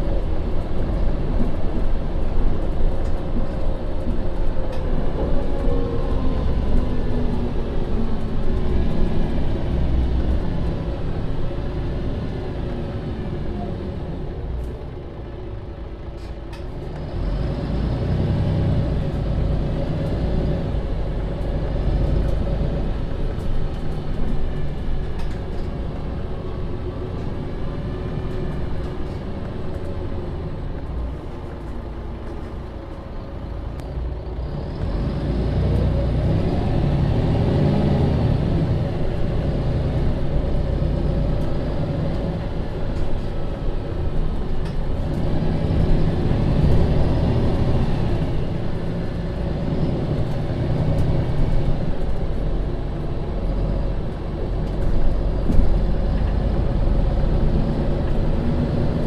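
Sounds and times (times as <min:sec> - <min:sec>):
bus engine and gearbox running: 0:00.0 - 0:59.0.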